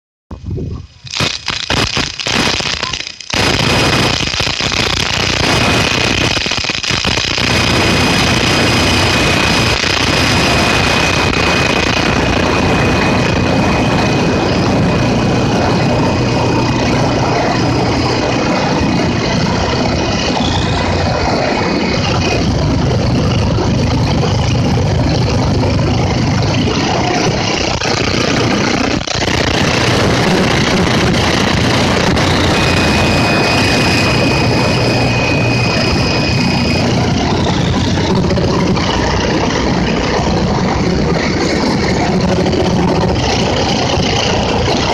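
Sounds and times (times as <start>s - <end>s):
storm wind roaring: 0.3s - 44.9s
high wind whistle: 7.3s - 27.6s, 29.7s - 44.9s.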